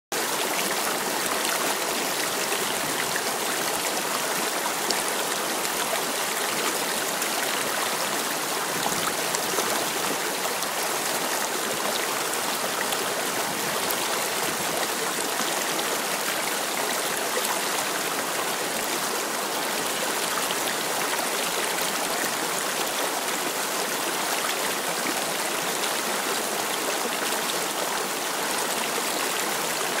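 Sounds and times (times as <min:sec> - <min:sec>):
river babbling over stones: 0:00.2 - 0:30.0.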